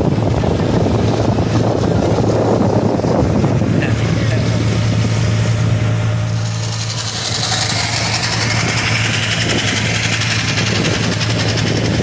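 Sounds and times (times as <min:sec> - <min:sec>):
boat engine hum: 0:00.0 - 0:12.0
rushing hiss: 0:04.1 - 0:11.9.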